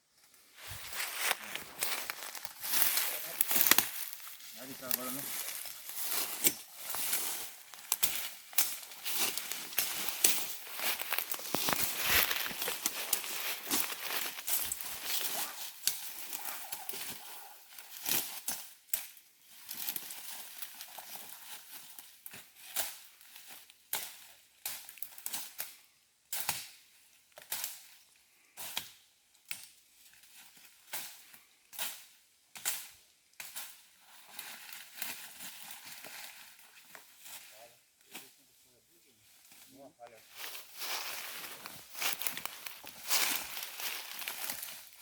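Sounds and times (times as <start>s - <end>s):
footsteps crunching dry leaves: 0.4s - 18.8s, 19.4s - 24.2s, 33.7s - 45.0s.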